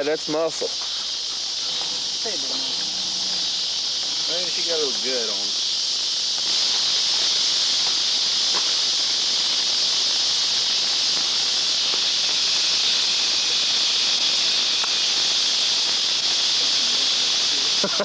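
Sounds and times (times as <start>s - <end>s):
insects calling: 0.0s - 18.0s
faint ticks: 14.7s - 15.0s.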